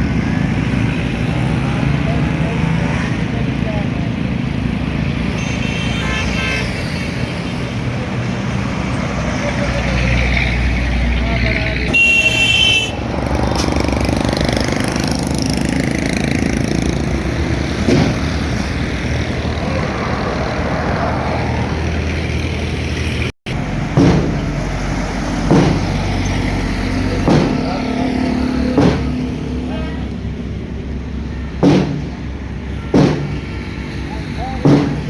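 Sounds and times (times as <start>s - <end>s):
road traffic engines: 0.0s - 35.0s
short high horn blast: 11.9s - 13.0s
knocks: 24.0s - 24.5s, 25.5s - 26.2s, 27.2s - 27.7s, 28.8s - 29.2s, 31.6s - 32.2s, 32.9s - 33.6s, 34.6s - 35.0s.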